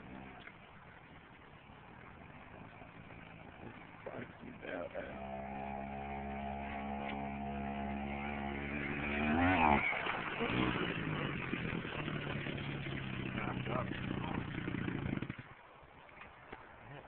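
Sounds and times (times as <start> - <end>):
pit bike engine revving: 0.0 - 15.6.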